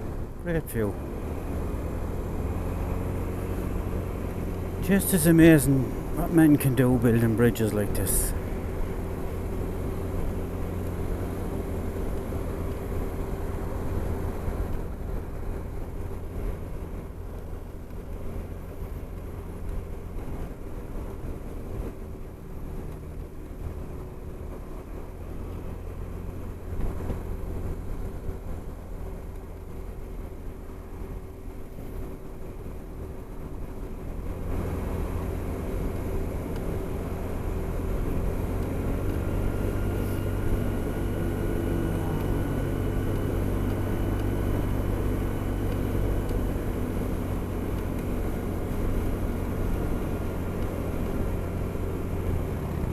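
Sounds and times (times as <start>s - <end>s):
scooter engine cruising: 34.0s - 52.9s.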